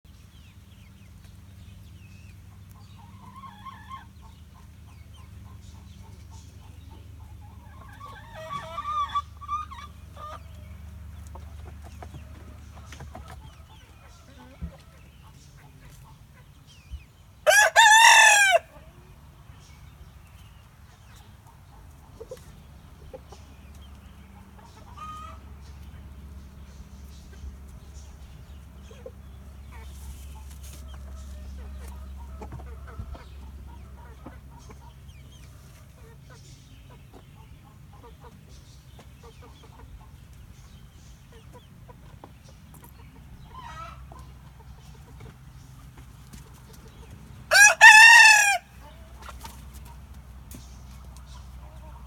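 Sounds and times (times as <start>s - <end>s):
faint chicken clucks: 0.1s - 52.0s
rooster crowing: 17.4s - 18.7s, 47.5s - 48.8s
chicken calling loudly: 17.5s - 18.8s, 47.5s - 48.8s.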